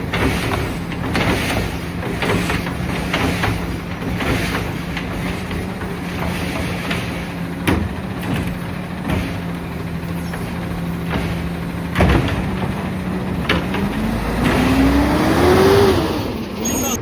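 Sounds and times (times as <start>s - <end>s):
truck engine idling and revving: 0.0s - 17.0s.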